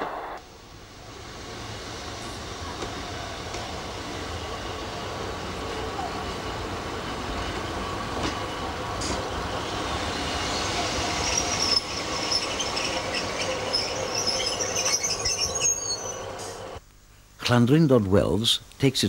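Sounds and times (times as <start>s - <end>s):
train running on rails: 0.0s - 16.8s
train wheels squealing: 8.2s - 16.8s.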